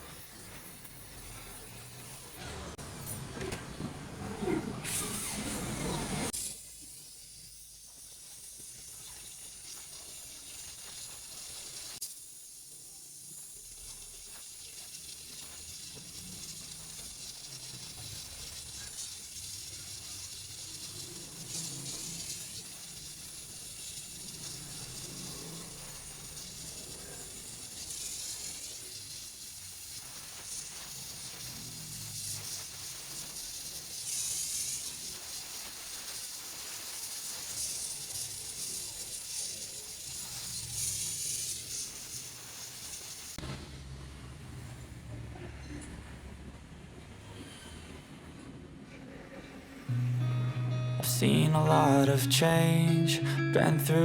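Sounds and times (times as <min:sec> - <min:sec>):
welding torch hissing: 0:00.0 - 0:02.4, 0:04.8 - 0:43.4.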